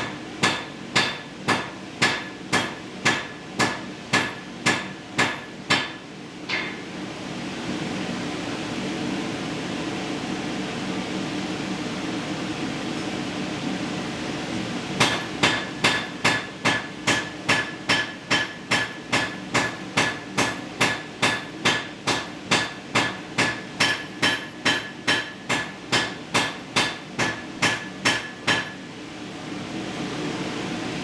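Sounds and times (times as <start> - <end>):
hammer striking metal on anvil: 0.0 - 6.9, 15.0 - 28.8
exhaust fan running: 0.0 - 31.0.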